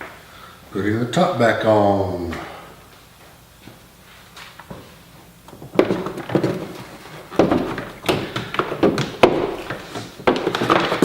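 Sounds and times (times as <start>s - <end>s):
plastic knocking on plastic: 5.7s - 11.0s.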